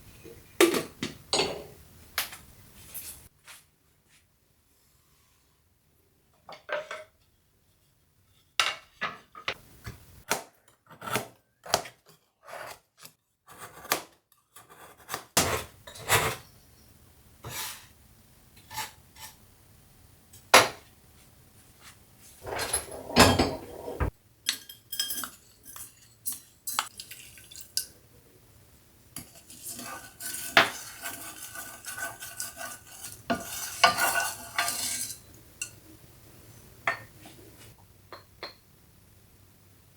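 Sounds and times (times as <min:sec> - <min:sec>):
metal spoons striking pots: 0:24.5 - 0:27.9.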